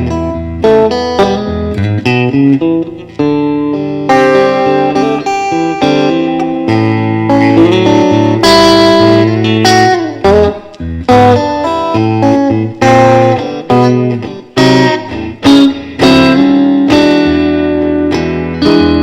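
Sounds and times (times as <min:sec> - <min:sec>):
electric guitar playing: 0:00.0 - 0:19.0.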